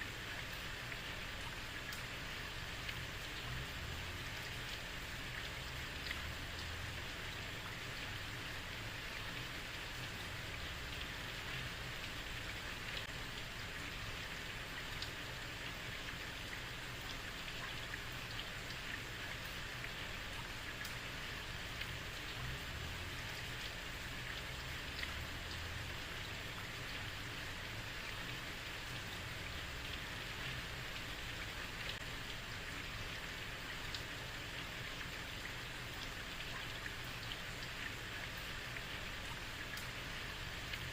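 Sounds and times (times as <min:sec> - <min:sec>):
heavy rain on street: 0:00.0 - 0:40.9.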